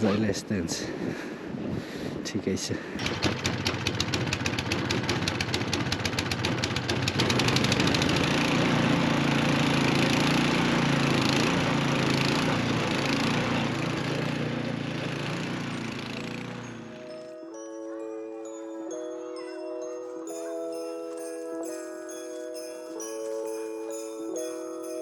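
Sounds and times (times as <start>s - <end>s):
small engine rattling: 3.0s - 17.3s.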